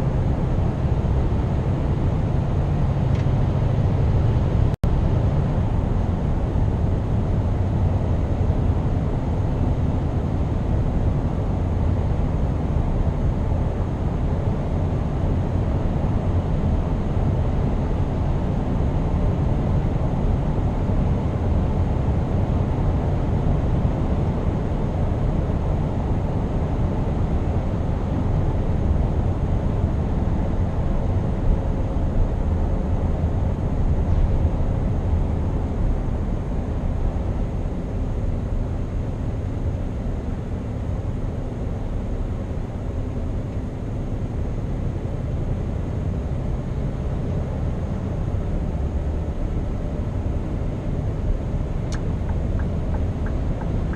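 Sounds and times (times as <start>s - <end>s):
truck engine running: 48.0s - 53.9s.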